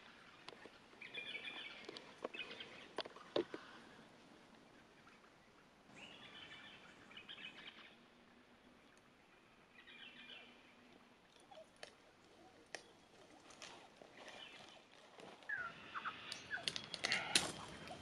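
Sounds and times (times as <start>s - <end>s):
high chattering bird calls: 15.5s - 18.0s.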